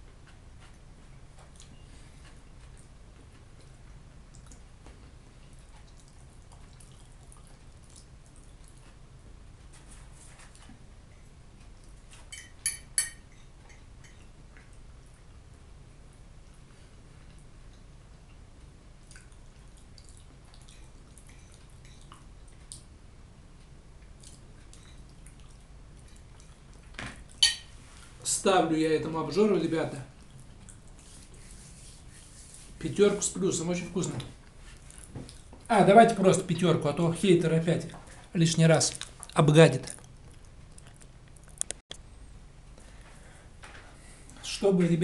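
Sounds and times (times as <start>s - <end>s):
low steady hum: 0.0s - 45.0s
chewing with wet mouth clicks: 1.4s - 9.0s, 16.4s - 23.0s, 24.0s - 27.4s, 30.2s - 31.3s, 34.4s - 35.7s, 38.9s - 41.9s
wet chewing mouth clicks: 19.0s - 22.9s.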